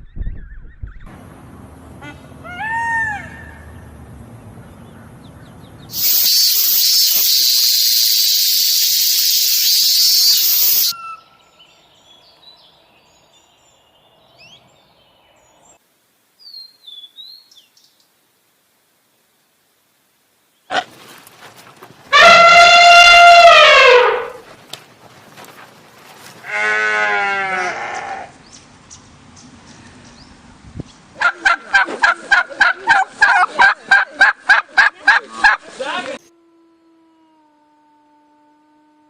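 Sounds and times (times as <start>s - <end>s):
loud steady hiss: 5.9s - 11.0s
animal call rising and falling: 5.9s - 11.2s, 22.1s - 24.4s
faint bird chirps: 5.9s - 12.2s.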